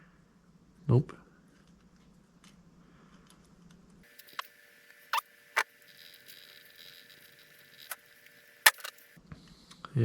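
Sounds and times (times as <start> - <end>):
small metal parts clicking: 5.1 - 9.1.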